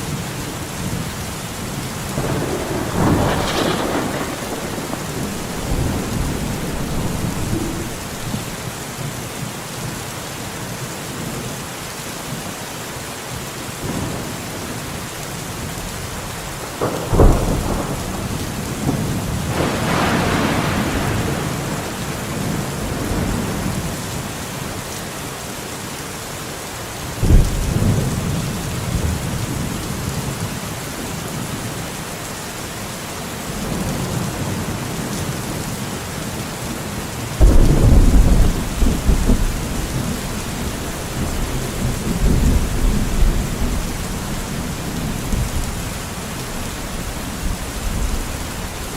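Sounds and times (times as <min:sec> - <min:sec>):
steady rain in forest: 0:00.0 - 0:48.9
thunder rumbling: 0:01.9 - 0:09.2, 0:15.6 - 0:24.3, 0:37.4 - 0:48.9.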